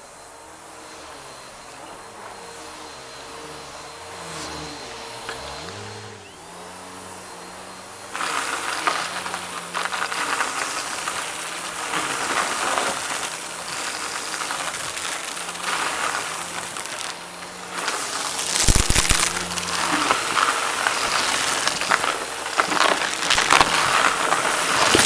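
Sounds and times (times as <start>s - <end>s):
vacuum cleaner running: 0.0s - 25.0s
debris crackling and crunching: 8.0s - 25.0s.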